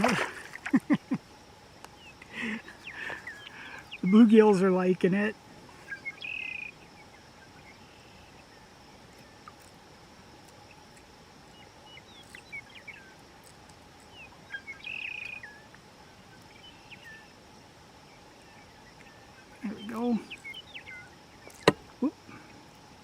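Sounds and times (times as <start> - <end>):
bird chirps: 2.0 - 4.6, 5.7 - 9.4, 11.5 - 13.2, 14.0 - 17.3, 18.1 - 22.1
bird trill: 2.0 - 4.6, 5.8 - 9.4, 11.5 - 13.2, 14.0 - 15.7, 18.4 - 21.7.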